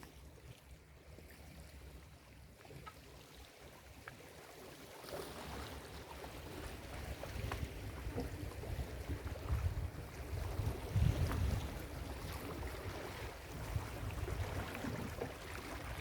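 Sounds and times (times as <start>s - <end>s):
waves breaking on beach: 0.0s - 0.4s, 4.4s - 16.0s.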